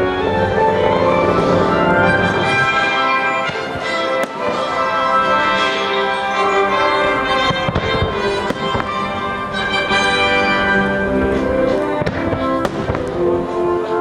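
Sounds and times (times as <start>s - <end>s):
firework bursts: 0.0s - 14.0s
orchestral music: 0.0s - 14.0s.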